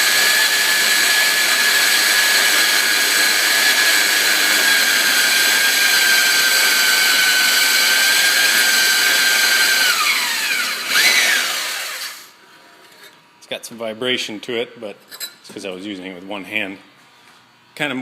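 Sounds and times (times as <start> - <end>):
band saw whining: 0.0 - 12.3
saw cutting pipe: 0.0 - 12.3.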